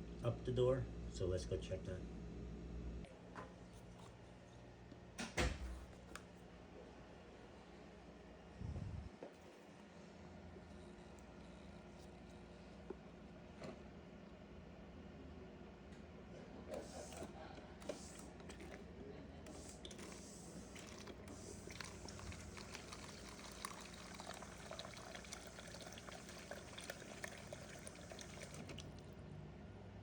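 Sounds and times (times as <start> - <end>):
refrigerator humming: 16.7 - 30.0
water pouring and splashing: 19.9 - 29.1.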